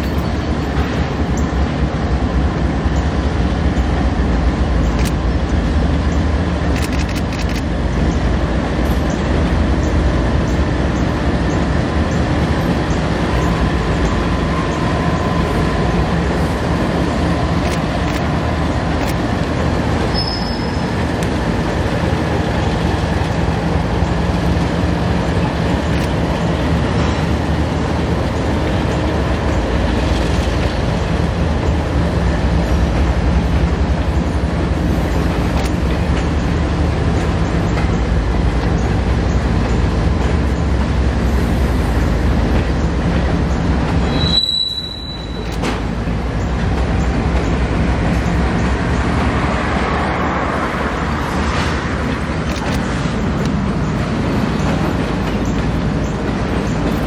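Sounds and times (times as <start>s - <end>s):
freight train wheels rumbling: 0.0s - 57.0s
high wheel squeal: 20.0s - 21.0s, 44.0s - 45.6s.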